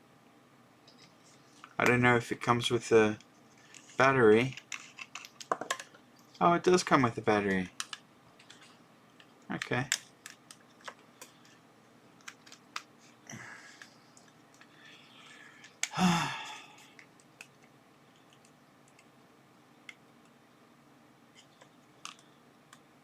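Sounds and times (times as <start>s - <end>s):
plastic handling clicks: 3.2s - 6.0s, 7.8s - 11.6s, 21.6s - 22.8s.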